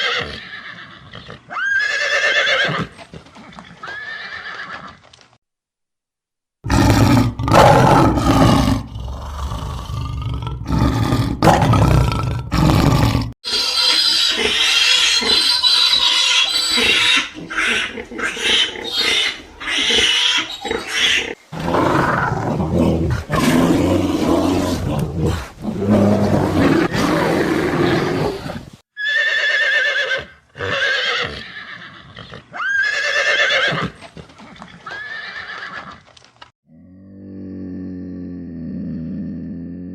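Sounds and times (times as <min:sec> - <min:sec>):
animal calls: 0:13.5 - 0:30.1.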